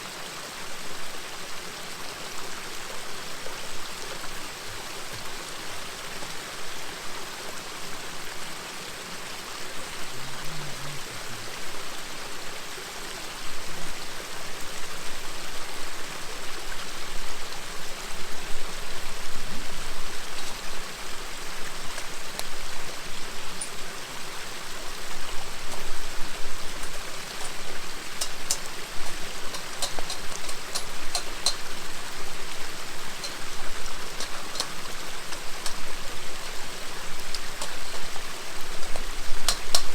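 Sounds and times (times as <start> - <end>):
river babbling: 0.1 - 39.9
campfire crackling and popping: 20.2 - 23.9, 24.9 - 39.9.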